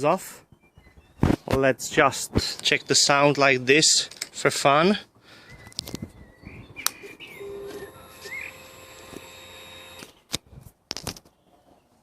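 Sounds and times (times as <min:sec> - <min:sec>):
birds chirping: 0:00.4 - 0:03.5, 0:05.1 - 0:10.3
faint steady whine: 0:07.4 - 0:10.1.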